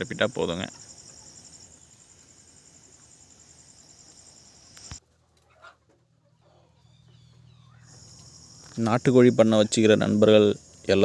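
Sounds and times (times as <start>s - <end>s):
crickets chirping: 0.0s - 5.0s, 6.8s - 11.0s
chickens clucking: 4.9s - 8.2s.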